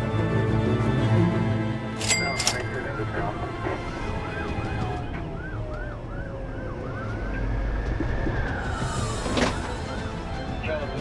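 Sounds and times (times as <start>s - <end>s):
siren tone sliding down: 3.5s - 9.6s.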